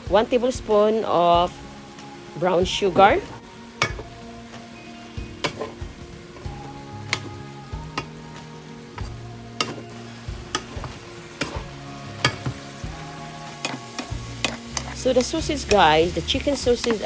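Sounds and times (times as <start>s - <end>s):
food sizzling in a pan: 0.0s - 17.0s
utensil knocking against pan: 3.8s - 4.1s, 5.4s - 5.8s, 12.2s - 12.6s.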